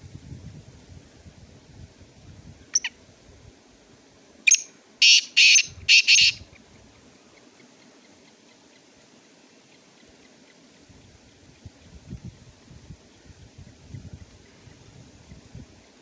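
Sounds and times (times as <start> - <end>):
bird harsh grating call: 4.5 - 6.4.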